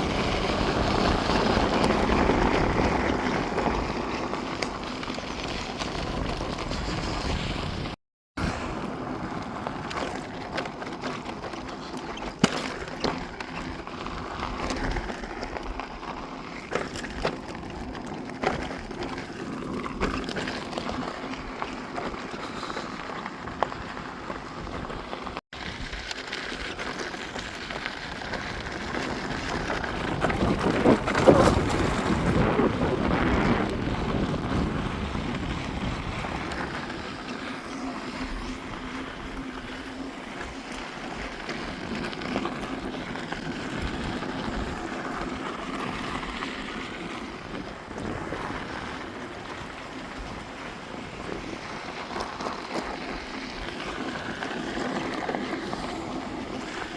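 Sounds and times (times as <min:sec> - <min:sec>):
unicycle tyre and ride noise: 0:00.0 - 0:56.9
wind buffeting microphone: 0:28.4 - 0:52.2.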